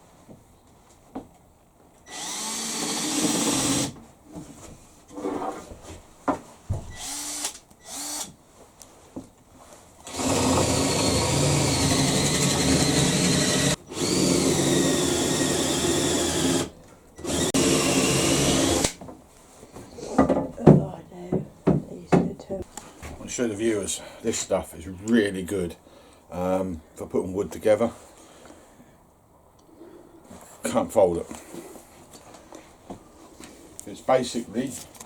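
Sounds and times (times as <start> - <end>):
power drill whining: 2.0 - 4.0, 6.9 - 8.4, 10.0 - 19.0
knocks and handling noises: 4.0 - 7.0, 19.0 - 23.2.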